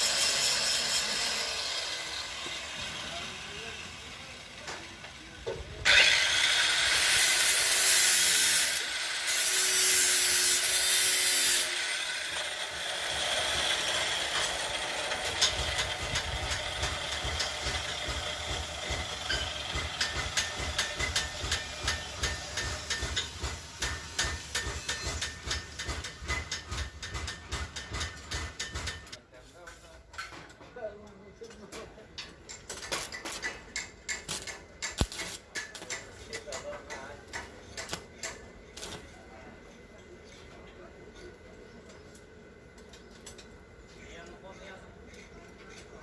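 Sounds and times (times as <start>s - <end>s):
loud hissing whining tool: 0.0s - 26.1s.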